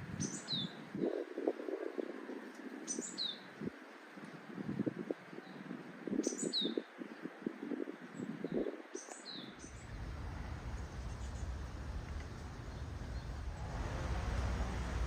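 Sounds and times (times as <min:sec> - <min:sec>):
distant traffic rumble: 0:09.7 - 0:15.0.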